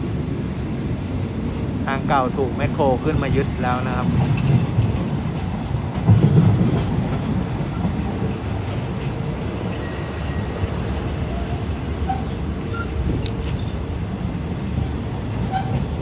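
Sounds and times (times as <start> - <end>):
train wheels clattering on rails: 0.0 - 16.0.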